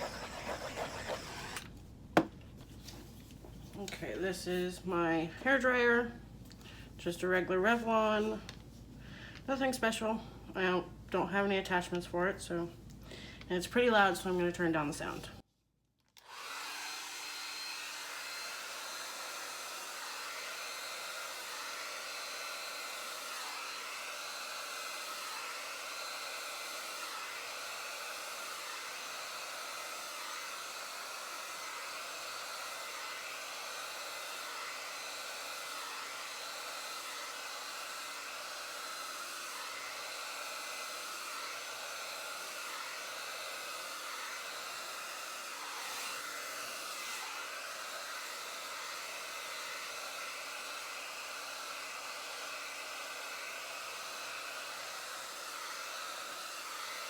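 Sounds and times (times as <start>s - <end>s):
hair dryer blowing: 0.0s - 2.4s, 16.2s - 57.0s.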